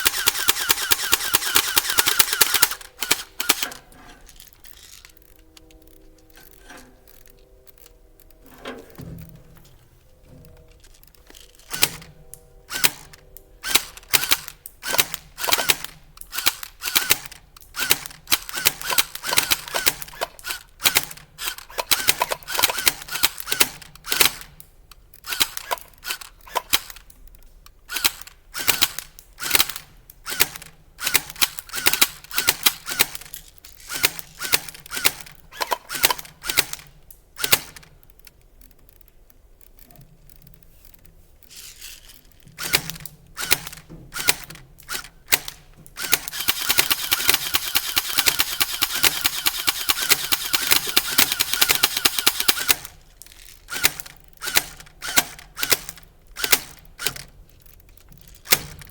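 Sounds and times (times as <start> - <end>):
airsoft guns firing: 0.0 - 3.8, 11.7 - 12.1, 12.7 - 24.6, 27.9 - 33.3, 42.6 - 53.0.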